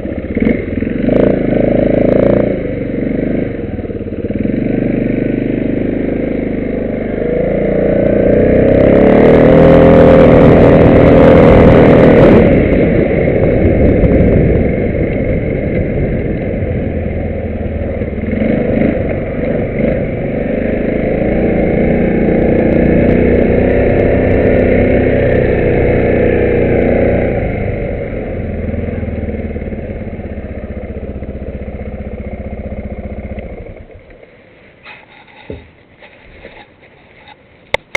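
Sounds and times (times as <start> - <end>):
atv engine revving: 0.0 - 34.2.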